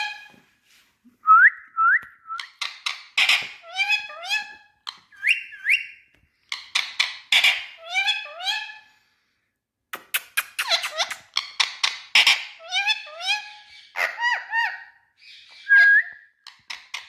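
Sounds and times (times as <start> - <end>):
parakeet clicks and squawks: 10.0 - 12.5.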